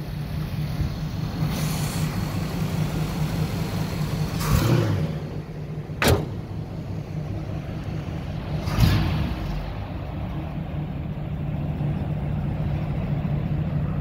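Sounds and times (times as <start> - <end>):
car engine idling: 0.0 - 14.0
sharp knock: 6.0 - 6.4.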